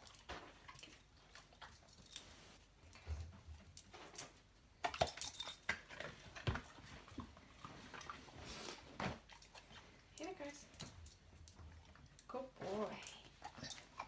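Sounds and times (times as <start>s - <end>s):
light knocks and metallic clinks: 0.1s - 6.6s, 9.0s - 12.3s, 13.0s - 14.0s
clicks and jingling: 4.9s - 5.7s, 13.4s - 14.0s.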